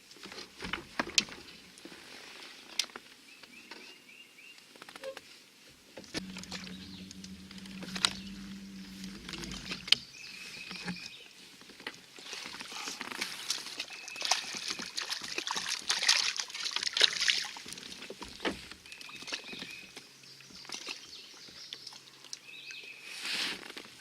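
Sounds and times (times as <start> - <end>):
steady low hum: 6.2 - 11.0
water splashing beside kayak: 6.2 - 22.3.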